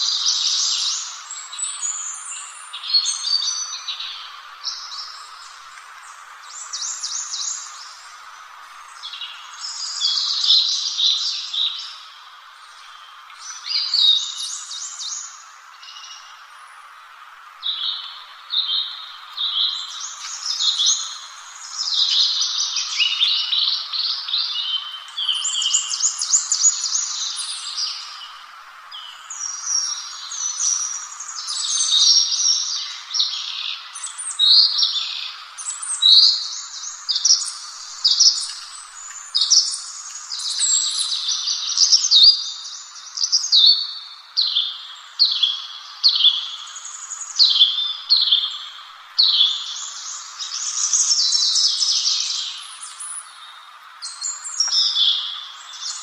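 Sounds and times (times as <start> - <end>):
songbird chirping: 0.0 - 56.0
steady background hiss: 0.0 - 56.0.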